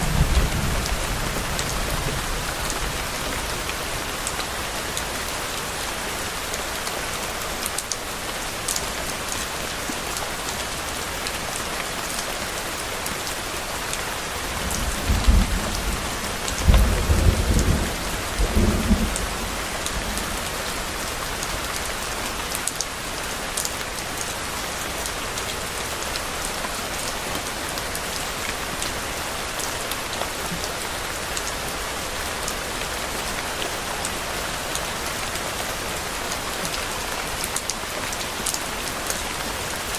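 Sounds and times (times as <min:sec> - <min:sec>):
thunder rumbling: 0:00.0 - 0:04.1, 0:14.6 - 0:21.2
steady rain falling: 0:00.0 - 0:39.9.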